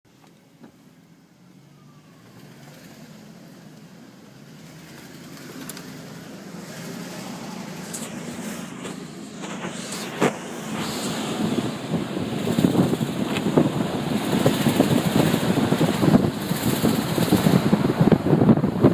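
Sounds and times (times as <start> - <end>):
car engine running: 2.6 - 18.9
faint engine clicks: 4.7 - 6.0.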